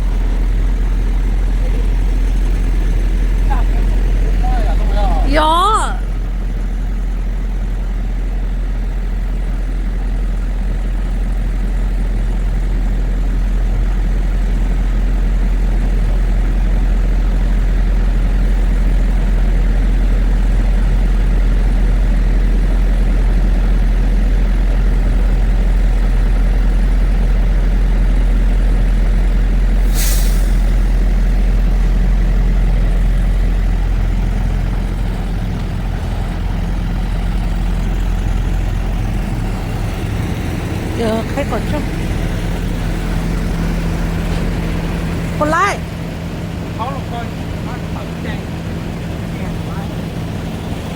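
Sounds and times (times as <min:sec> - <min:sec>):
truck engine and road drone: 0:00.0 - 0:50.9
air brake hiss: 0:29.8 - 0:30.9.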